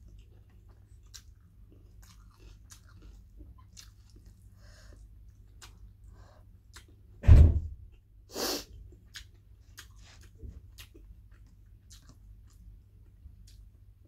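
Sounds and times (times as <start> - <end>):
heavy thump: 7.2 - 7.8.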